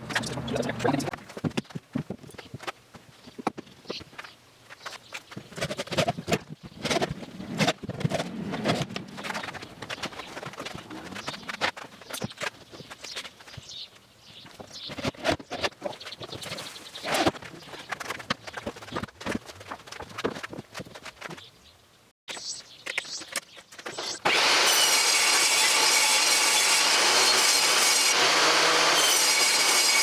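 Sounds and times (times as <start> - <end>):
knocks and clatter of wood and tools: 0.0 - 13.7, 14.4 - 21.4.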